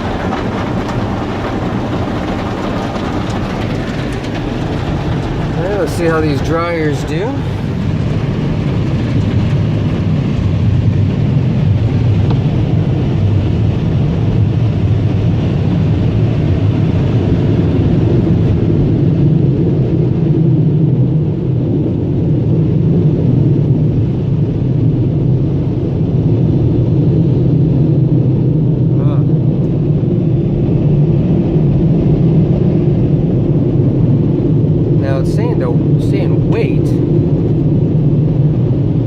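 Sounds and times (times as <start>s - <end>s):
car wash air dryers blowing: 0.0s - 10.1s, 35.0s - 37.1s.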